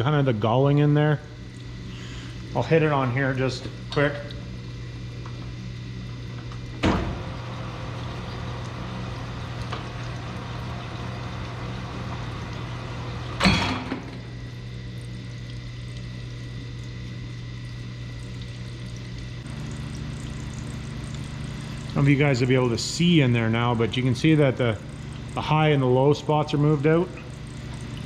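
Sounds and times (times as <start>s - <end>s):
grinding machine motor: 5.2s - 14.7s.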